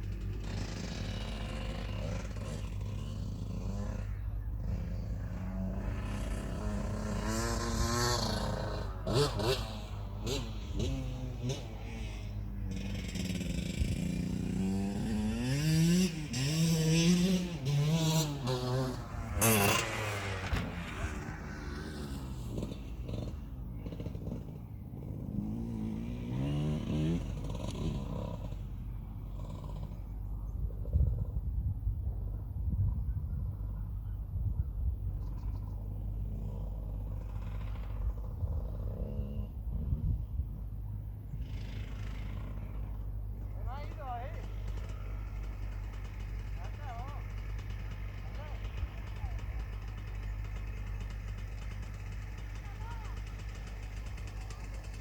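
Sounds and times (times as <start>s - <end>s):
motocross bike engine running: 0.0s - 32.7s, 33.5s - 55.0s
low rumble: 17.4s - 25.3s.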